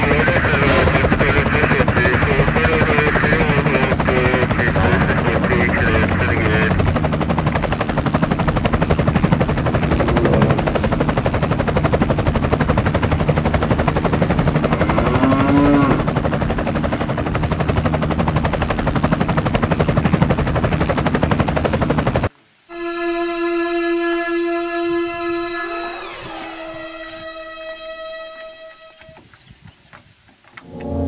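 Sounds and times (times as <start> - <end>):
engine running with fast chatter: 0.0 - 16.4
held musical note: 9.6 - 11.4, 30.6 - 31.0.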